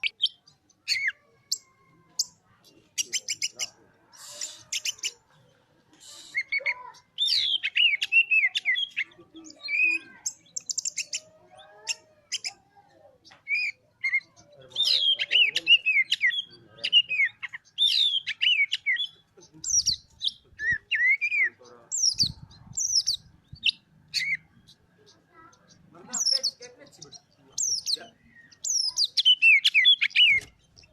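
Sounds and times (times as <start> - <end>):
bird song whistles and chirps: 6.1 - 12.6, 13.2 - 24.8, 25.7 - 30.9.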